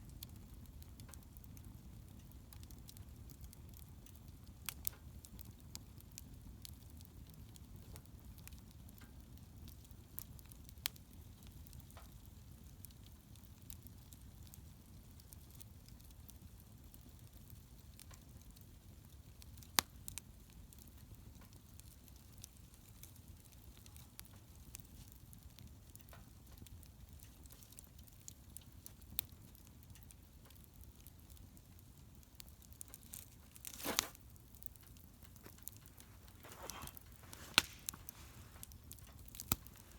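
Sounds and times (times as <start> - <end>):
wood fire crackling: 0.0 - 39.9
fire popping sharply: 32.9 - 39.9.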